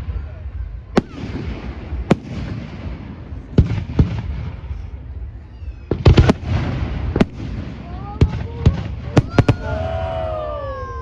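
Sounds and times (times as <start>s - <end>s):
fireworks bangs: 0.0s - 11.0s
fireworks crackling: 0.0s - 11.0s
fireworks whistles: 9.1s - 10.7s.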